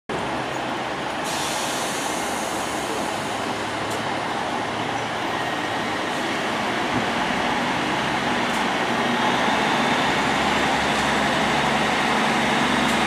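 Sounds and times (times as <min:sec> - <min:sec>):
train rumbling on rails: 0:00.1 - 0:13.0.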